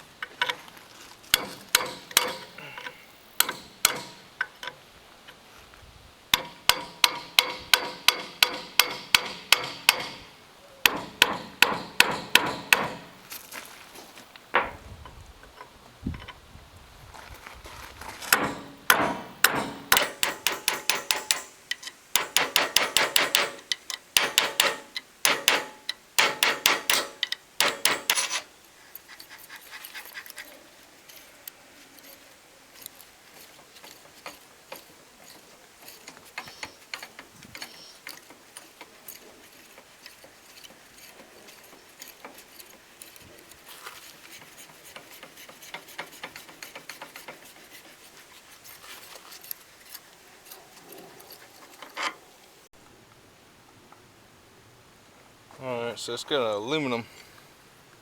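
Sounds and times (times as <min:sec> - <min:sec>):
metal parts clinking and rattling: 0:01.3 - 0:04.8, 0:06.4 - 0:13.6, 0:18.2 - 0:28.5, 0:31.9 - 0:52.2
hammer striking metal: 0:01.4 - 0:04.4, 0:06.4 - 0:13.3, 0:18.3 - 0:28.5.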